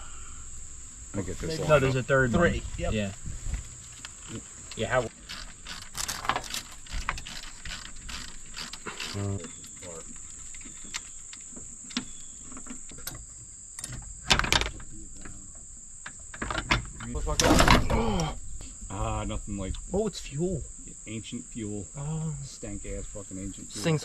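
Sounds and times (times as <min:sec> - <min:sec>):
crickets chirping: 0:00.0 - 0:24.0
person speaking: 0:01.2 - 0:03.1, 0:17.1 - 0:24.0.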